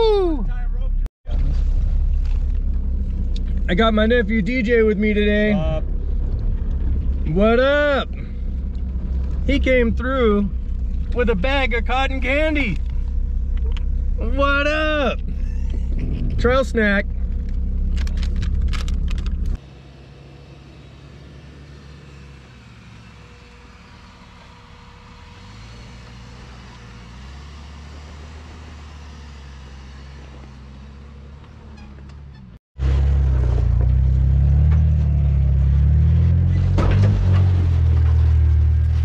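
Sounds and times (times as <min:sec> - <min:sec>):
car engine revving: 0:32.8 - 0:39.0.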